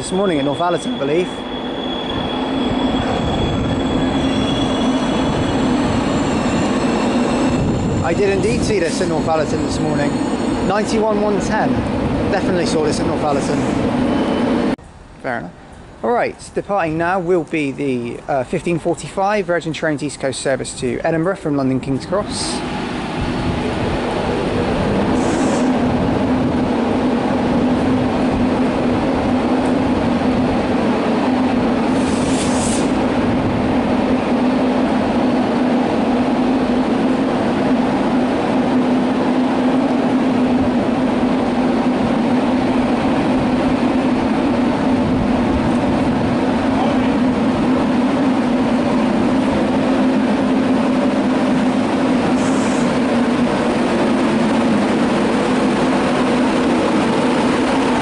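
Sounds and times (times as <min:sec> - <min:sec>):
electric locomotive humming: 0:00.0 - 0:16.0, 0:21.1 - 0:58.0
brief high hisses: 0:25.2 - 0:25.8, 0:31.9 - 0:33.0, 0:52.4 - 0:52.9.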